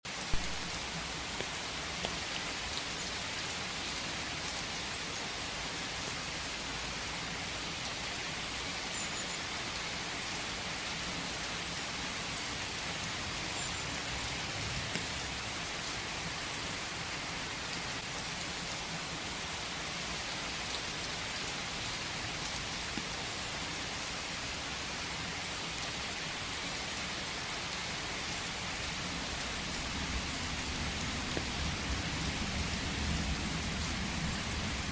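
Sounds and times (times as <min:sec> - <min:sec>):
steady rain hiss: 0:00.1 - 0:34.9
raindrops ticking: 0:00.3 - 0:02.9, 0:29.7 - 0:32.2.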